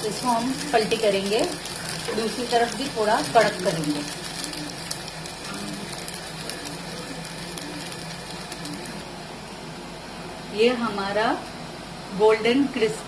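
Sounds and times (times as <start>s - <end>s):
batter sizzling in oil: 0.0s - 9.4s.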